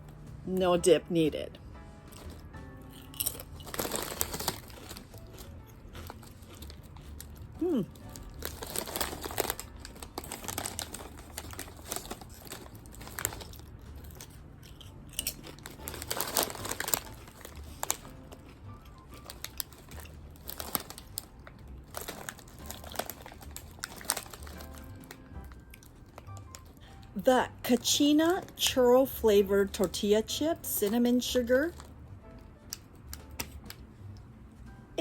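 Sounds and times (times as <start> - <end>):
chips crunching: 2.1 - 26.8
chip bag crinkling: 2.1 - 27.0, 31.7 - 31.9.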